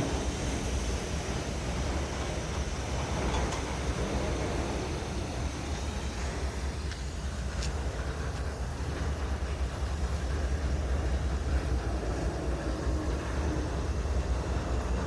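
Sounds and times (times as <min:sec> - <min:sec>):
freight train rumble: 0:00.0 - 0:15.0.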